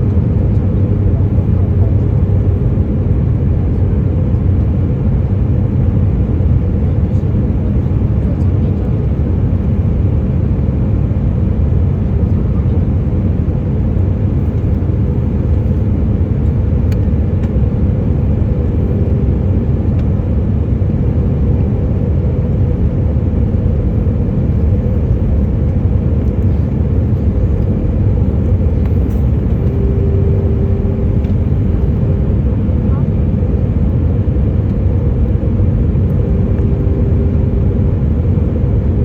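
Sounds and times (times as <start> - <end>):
airplane cabin engine drone: 0.0 - 39.0
faint steady hum: 13.8 - 39.0.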